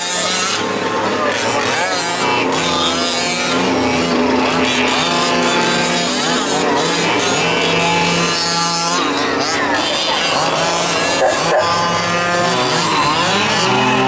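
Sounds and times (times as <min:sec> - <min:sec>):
small two-stroke engines revving: 0:00.0 - 0:14.0.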